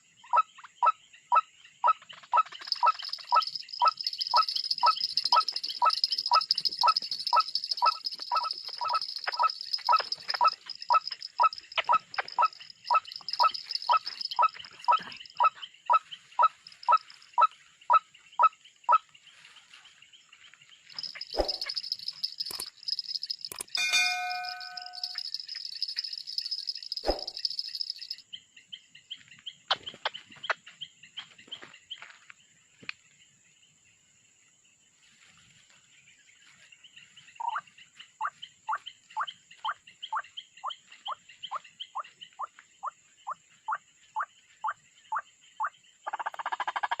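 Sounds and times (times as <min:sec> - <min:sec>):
sharp clicks: 0:02.5 - 0:15.0, 0:20.9 - 0:28.2
high insect drone: 0:02.5 - 0:15.4, 0:20.9 - 0:28.2.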